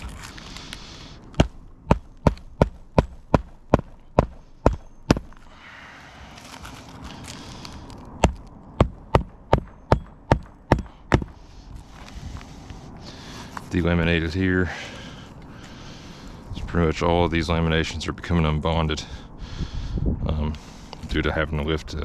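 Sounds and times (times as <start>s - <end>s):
hammer driving nails into shingle: 1.4s - 5.3s, 8.2s - 11.3s.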